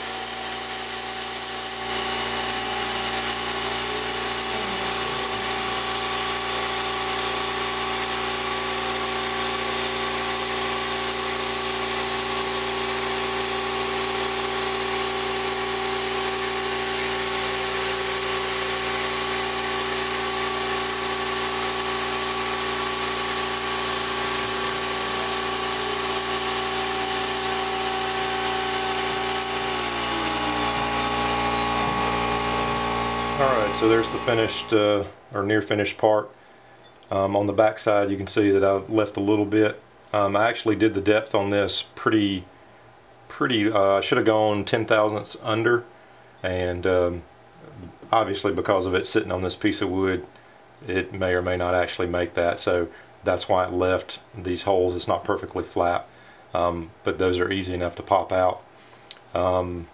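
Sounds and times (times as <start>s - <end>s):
endmill cutting aluminium: 0.0s - 34.8s
router spindle whining: 0.0s - 34.9s.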